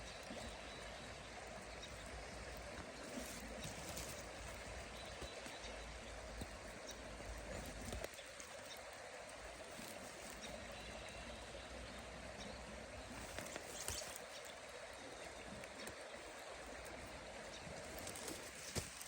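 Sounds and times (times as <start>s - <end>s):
creek water flowing: 0.0s - 19.0s.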